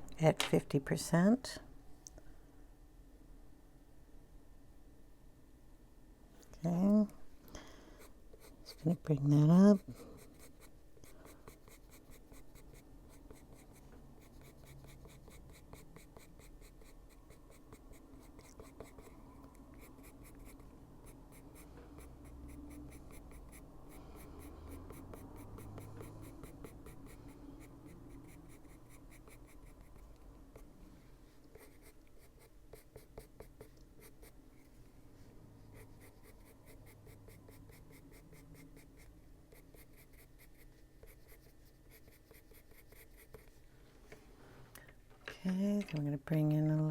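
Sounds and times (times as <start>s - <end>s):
pencil scratching on paper: 8.3s - 30.7s, 31.5s - 34.4s, 35.7s - 43.6s.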